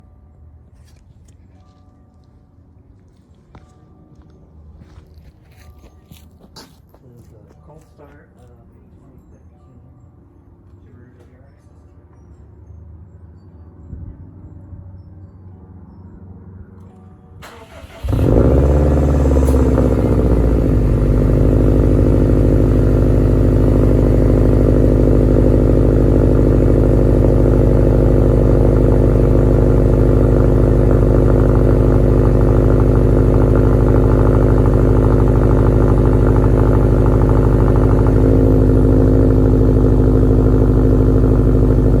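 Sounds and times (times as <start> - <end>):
car engine cold start and idle: 17.4 - 42.0.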